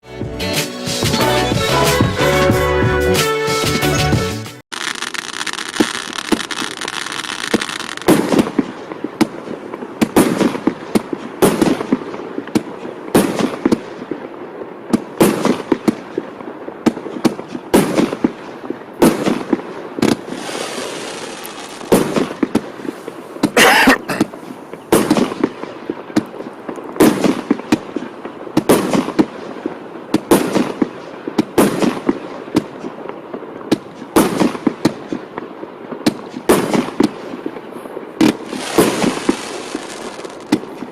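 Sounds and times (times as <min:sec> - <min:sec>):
firework hissing: 0:04.7 - 0:08.5, 0:20.0 - 0:25.1, 0:38.2 - 0:40.7
loud firework bangs: 0:04.7 - 0:40.9.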